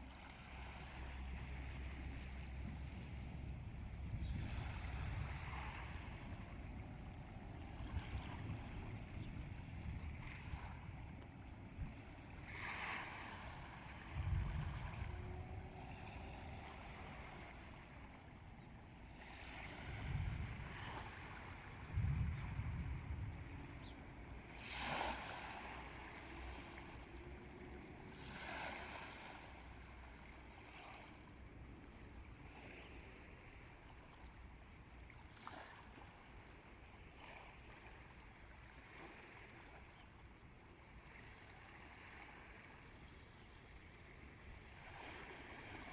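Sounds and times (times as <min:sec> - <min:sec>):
small waves washing onto shore: 0:00.0 - 0:45.9
wind rumbling on microphone: 0:00.5 - 0:30.0.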